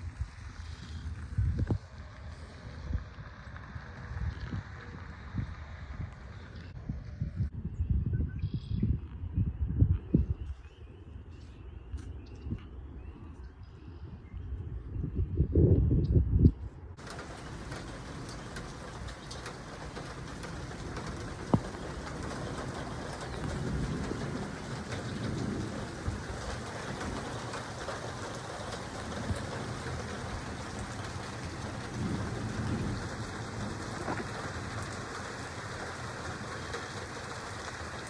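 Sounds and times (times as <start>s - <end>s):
distant thunder rumbling: 17.0s - 38.0s
heavy rain falling: 17.0s - 38.0s.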